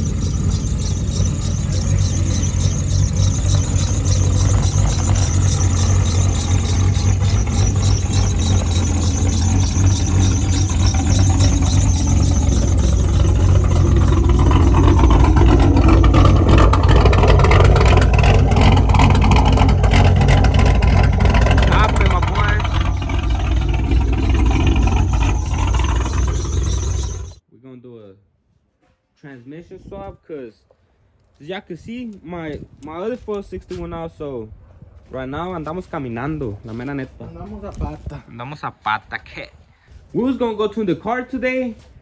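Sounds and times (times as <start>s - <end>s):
louder engine sound: 0.0s - 27.4s
vehicle engine idling: 0.0s - 27.4s.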